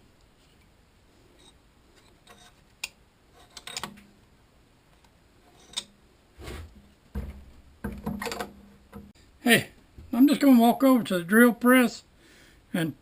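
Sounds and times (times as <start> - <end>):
tools clicking and knocking: 2.2 - 4.0, 7.2 - 9.1
heavy dull thumps: 6.4 - 9.1.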